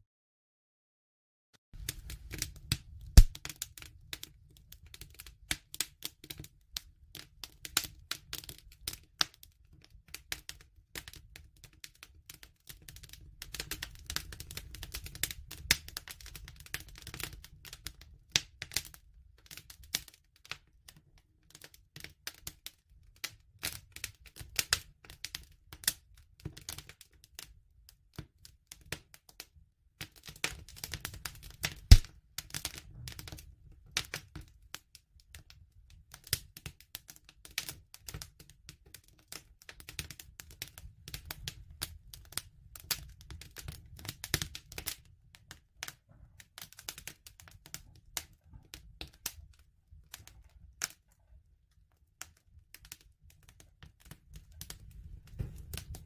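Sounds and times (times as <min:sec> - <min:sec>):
wood fire crackling: 0:01.8 - 0:20.7, 0:21.3 - 0:29.2, 0:30.0 - 0:56.0.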